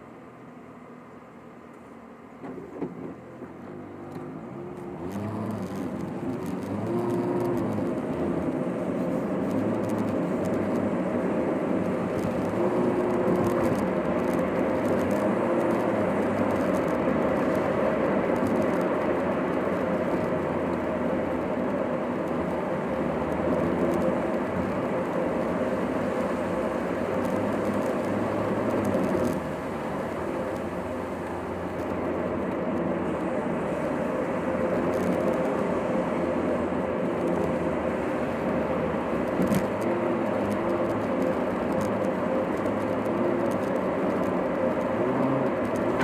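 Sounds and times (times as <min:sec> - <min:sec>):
car engine and tyre noise: 0:00.0 - 0:46.0.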